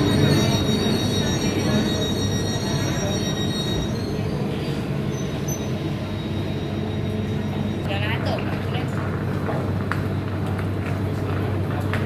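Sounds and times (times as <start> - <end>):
high brake squeal: 0.0 - 7.8
train wheels rumbling on rails: 0.0 - 12.0.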